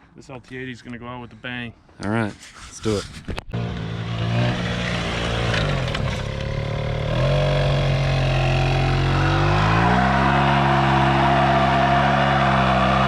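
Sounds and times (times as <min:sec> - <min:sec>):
quad bike engine revving: 0:03.5 - 0:13.0.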